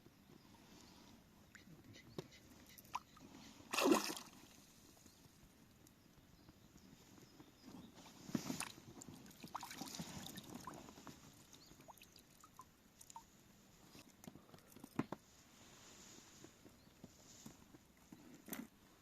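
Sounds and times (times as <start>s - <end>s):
water splashing: 3.7s - 4.5s, 8.6s - 10.8s.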